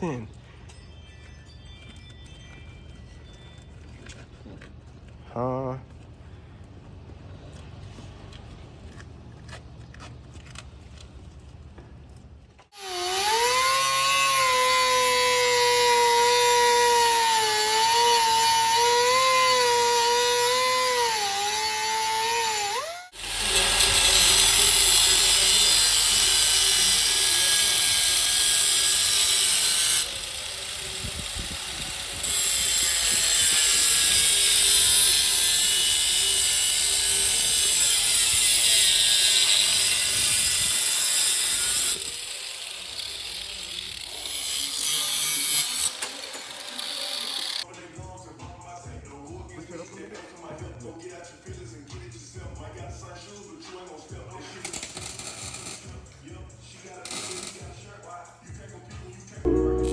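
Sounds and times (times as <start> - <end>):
power tool whining: 12.8 - 47.6
hissing grind: 14.7 - 47.6.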